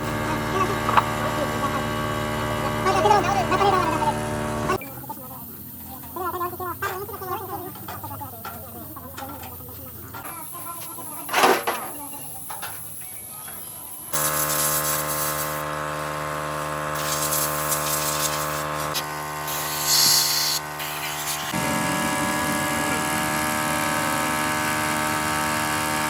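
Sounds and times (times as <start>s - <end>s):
machine humming: 0.0s - 4.8s, 13.9s - 26.0s
short burst of hiss: 14.2s - 15.6s, 19.5s - 21.5s.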